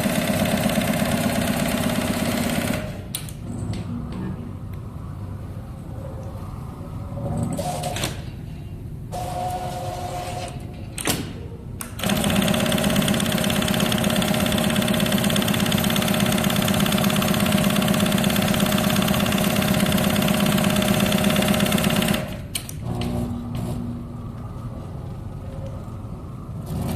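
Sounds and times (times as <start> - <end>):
sewing machine stitching: 12.0 - 23.2.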